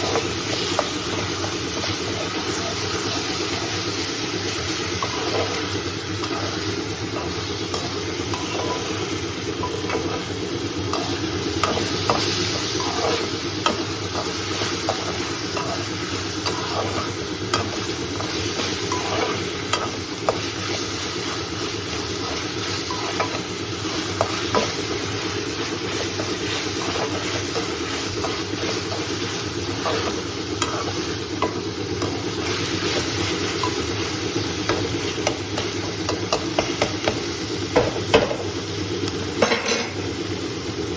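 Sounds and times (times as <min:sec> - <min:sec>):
food sizzling in a pan: 0:00.0 - 0:40.9
spoon scraping against pan: 0:04.8 - 0:10.3, 0:10.9 - 0:34.1.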